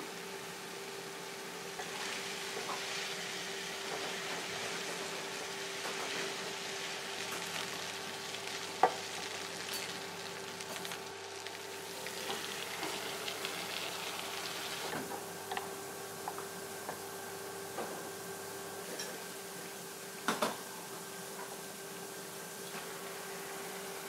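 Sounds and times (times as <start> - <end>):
meat sizzling in a frying pan: 1.7 - 15.0.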